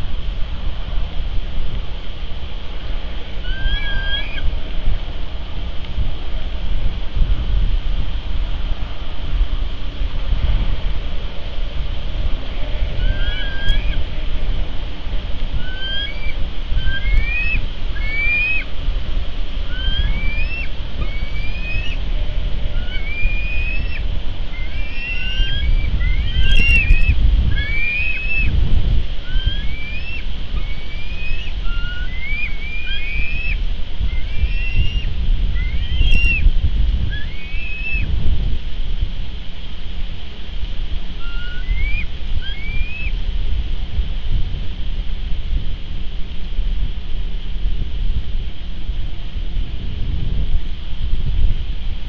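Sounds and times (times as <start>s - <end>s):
wind rumble on microphone: 0.0s - 52.0s
bird chirps: 3.5s - 4.4s, 13.0s - 14.0s, 15.6s - 18.6s, 19.7s - 22.0s, 22.8s - 24.0s, 24.6s - 28.5s, 29.3s - 36.4s, 37.1s - 38.0s.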